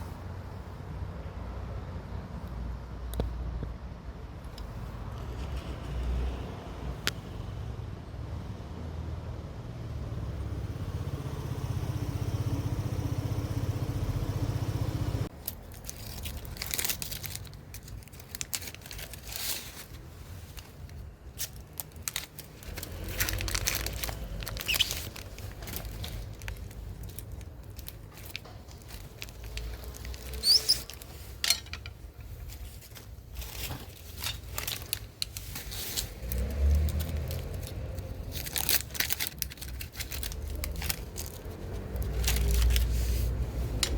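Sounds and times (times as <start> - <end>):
insulation and tape tearing: 20.8 - 31.2, 33.4 - 43.0.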